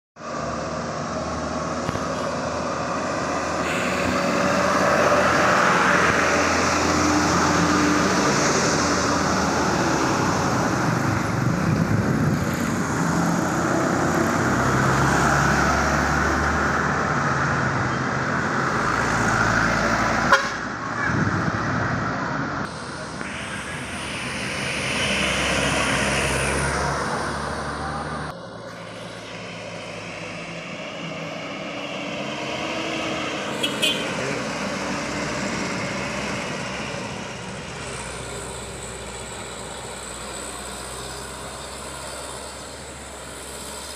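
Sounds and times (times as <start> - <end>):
heavy trucks passing: 0.2 - 43.9
truck horn toots: 20.3 - 20.7, 33.5 - 34.4.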